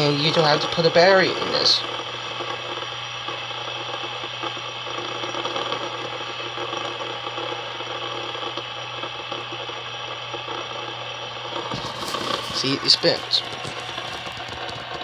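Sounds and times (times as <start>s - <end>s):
fidget spinner whirring: 10.6s - 15.0s.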